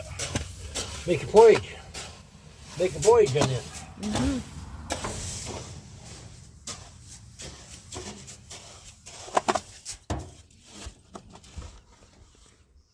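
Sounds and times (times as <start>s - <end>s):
scoop scraping grain: 0.2s - 9.9s.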